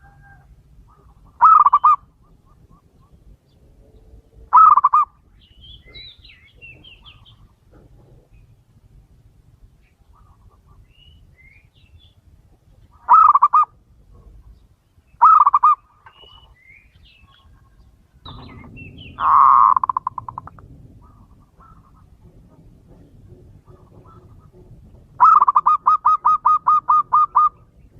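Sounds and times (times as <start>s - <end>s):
dove cooing: 0.0s - 5.2s, 12.9s - 14.4s, 15.2s - 16.4s, 18.3s - 27.9s
small birds chirping: 0.8s - 8.8s, 9.6s - 27.9s.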